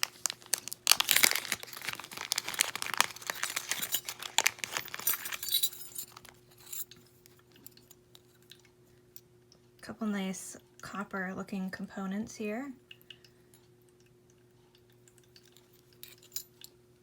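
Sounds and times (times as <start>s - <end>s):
plastic bag crinkling: 0.0s - 6.4s
metal jewellery clinking: 1.0s - 7.0s, 15.5s - 16.7s.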